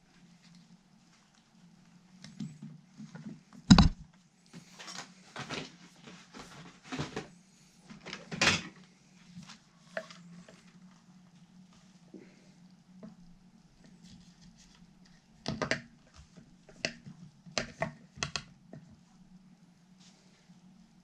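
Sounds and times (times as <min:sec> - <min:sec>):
steady low hum: 0:00.0 - 0:21.0
sharp knock on workbench: 0:03.7 - 0:04.0
scrapes and rustles: 0:04.5 - 0:12.1.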